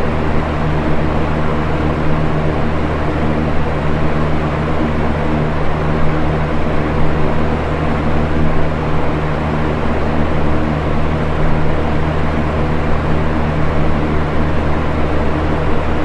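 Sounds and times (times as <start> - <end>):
fan air whoosh: 0.0 - 16.0
low motor hum: 0.0 - 16.0.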